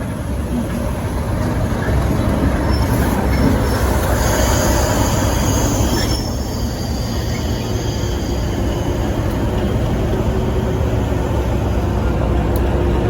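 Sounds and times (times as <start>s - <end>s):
train rumbling by: 0.0s - 13.0s
high-pitched wheel squeal: 2.6s - 9.3s.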